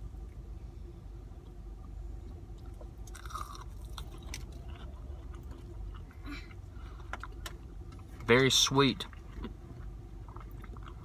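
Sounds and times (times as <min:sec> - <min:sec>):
person chewing crunchy fried chicken: 0:02.2 - 0:08.3, 0:08.9 - 0:11.0.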